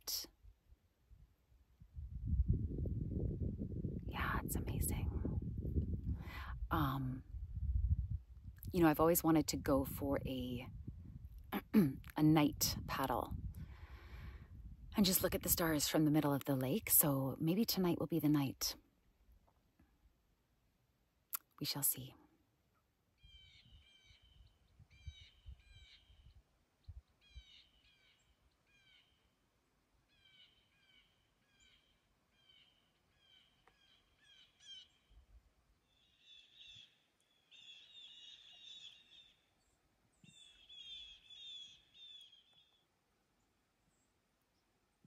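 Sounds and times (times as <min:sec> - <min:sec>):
faint harsh bird calls: 0:23.2 - 0:29.4, 0:30.1 - 0:35.2, 0:35.8 - 0:42.9.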